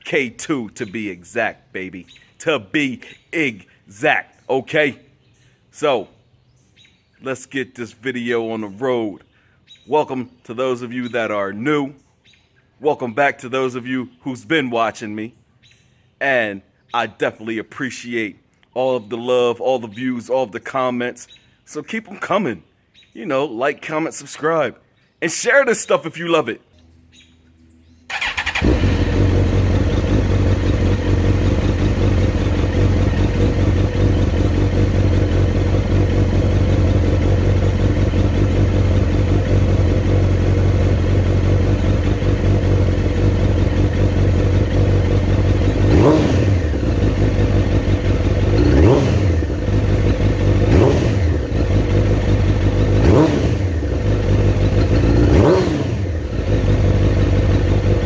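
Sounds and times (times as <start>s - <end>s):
motorcycle engine idling and revving: 27.1s - 58.0s.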